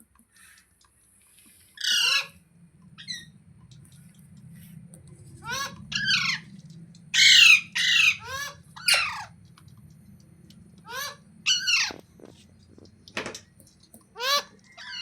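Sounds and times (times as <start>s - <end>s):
parrot harsh squawks: 1.8s - 2.4s, 5.4s - 6.5s, 7.1s - 9.3s, 10.8s - 12.0s, 14.2s - 15.0s.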